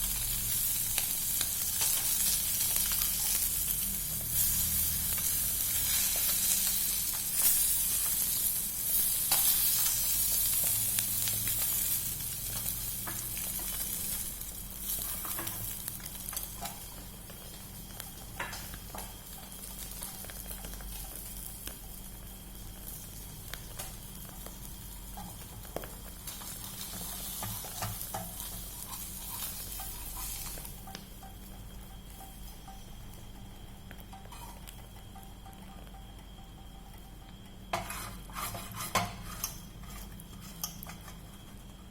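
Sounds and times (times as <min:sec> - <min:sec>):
food sizzling in hot oil: 0:00.0 - 0:41.9
cooking utensil clicks and taps: 0:25.2 - 0:28.6, 0:29.8 - 0:32.8.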